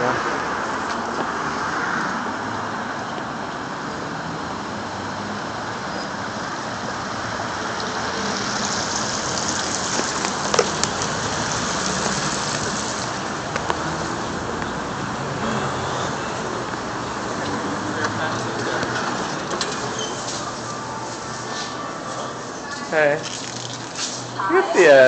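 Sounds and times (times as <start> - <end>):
rain falling: 7.8 - 14.6.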